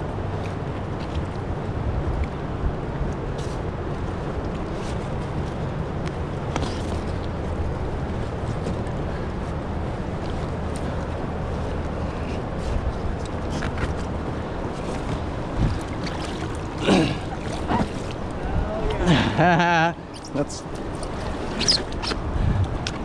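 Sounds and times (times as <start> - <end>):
wind noise on microphone: 0.0 - 16.6, 20.8 - 23.0
river water rushing: 9.7 - 19.4, 20.0 - 23.0
light water splashes: 13.2 - 19.1.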